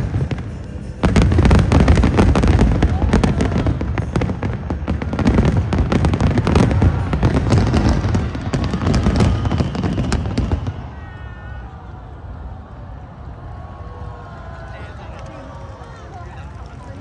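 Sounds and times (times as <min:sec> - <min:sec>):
fireworks booming and crackling: 0:00.0 - 0:11.0
faint crowd voices: 0:00.0 - 0:17.0.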